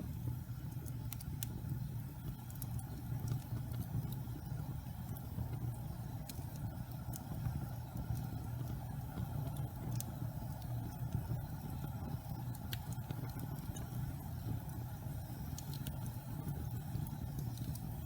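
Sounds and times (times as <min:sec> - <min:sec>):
fire crackling and popping: 0:00.0 - 0:18.0
low rumble of flames: 0:00.0 - 0:18.0.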